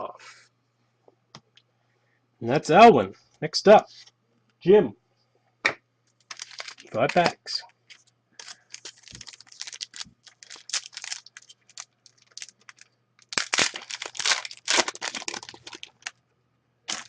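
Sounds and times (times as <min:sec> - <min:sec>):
wrappers tearing and crinkling: 0:06.2 - 0:16.2.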